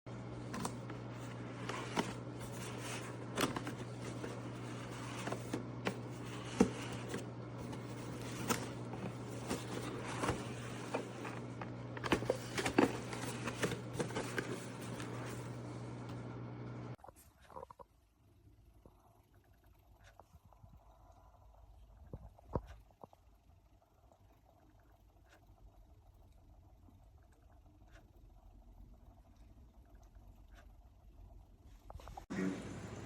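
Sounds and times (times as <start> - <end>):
steady low hum: 0.1 - 17.8.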